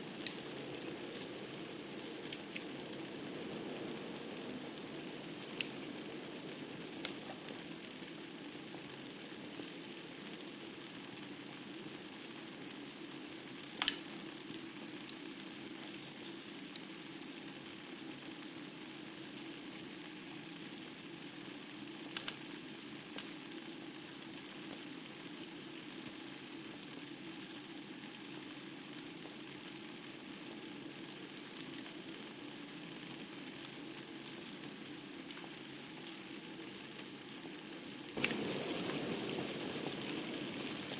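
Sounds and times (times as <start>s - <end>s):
fire hissing: 0.0s - 10.5s, 38.1s - 40.9s
fire crackling and popping: 0.0s - 17.5s, 21.9s - 23.5s, 24.4s - 40.9s.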